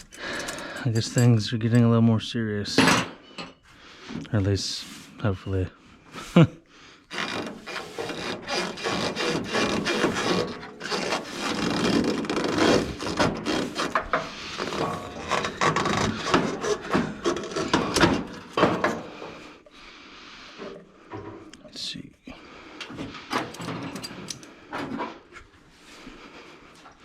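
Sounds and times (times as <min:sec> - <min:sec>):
metal parts scraping and rubbing: 0:00.0 - 0:01.5, 0:07.1 - 0:19.4, 0:23.3 - 0:24.5.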